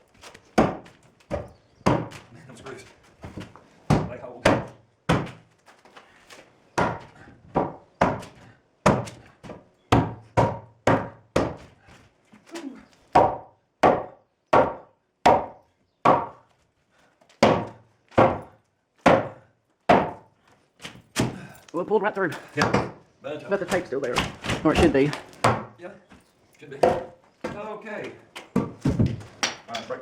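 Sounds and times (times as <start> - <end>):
hammer striking wood: 0.6 - 2.2, 3.9 - 5.4, 6.8 - 9.2, 9.9 - 11.6, 13.1 - 16.4, 17.4 - 20.2, 22.6 - 23.0, 23.7 - 25.7, 26.8 - 27.6.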